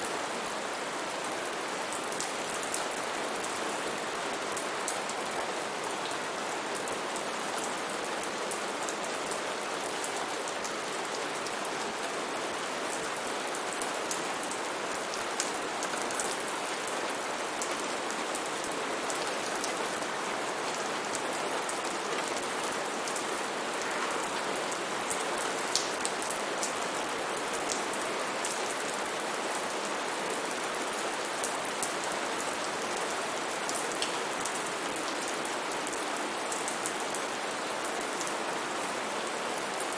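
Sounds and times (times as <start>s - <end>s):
rain hissing on canopy: 0.0s - 39.9s.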